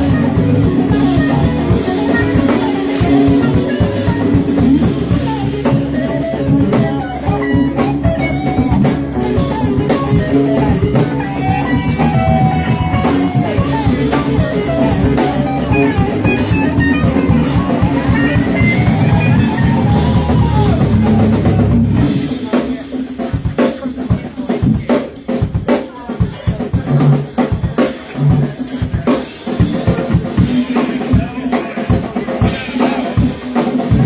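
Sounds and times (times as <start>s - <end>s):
lead guitar bending notes: 0.0s - 22.3s
rock blues band playing: 0.0s - 34.0s.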